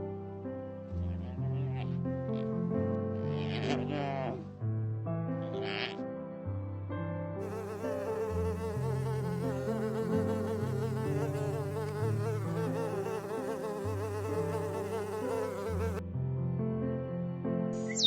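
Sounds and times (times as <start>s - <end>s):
flying insect buzzing: 7.4s - 16.0s.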